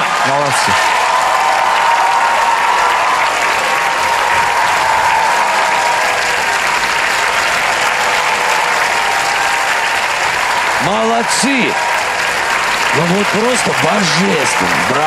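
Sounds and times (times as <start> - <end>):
audience applauding: 0.0 - 15.0
audience cheering: 0.0 - 15.0.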